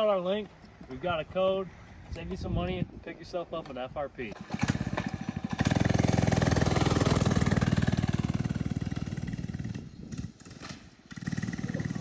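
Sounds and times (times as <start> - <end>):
minibike engine running: 4.4 - 12.0.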